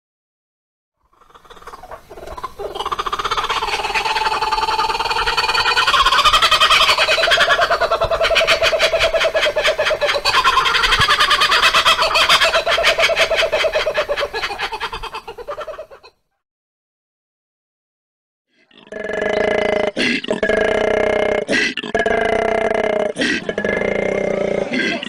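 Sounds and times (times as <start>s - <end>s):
kookaburra cackling calls: 1.1s - 16.2s, 22.0s - 25.0s.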